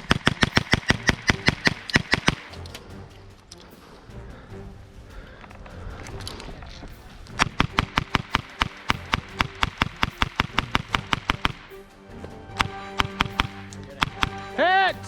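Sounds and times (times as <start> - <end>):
airsoft gun rapid shots: 0.0 - 2.6, 7.4 - 11.7, 12.6 - 14.4.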